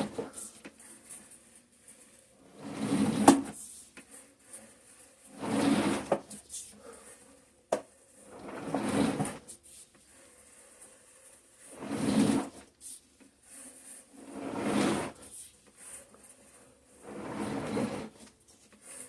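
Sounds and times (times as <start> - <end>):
person breathing heavily: 6.6 - 7.3.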